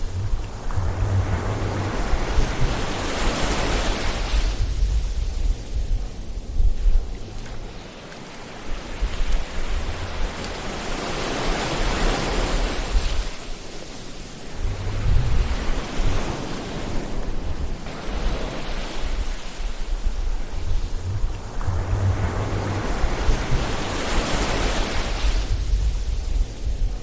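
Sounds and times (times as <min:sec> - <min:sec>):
low rumble: 0:00.0 - 0:03.4, 0:14.6 - 0:16.2, 0:19.1 - 0:27.0
ocean waves breaking: 0:00.0 - 0:27.0.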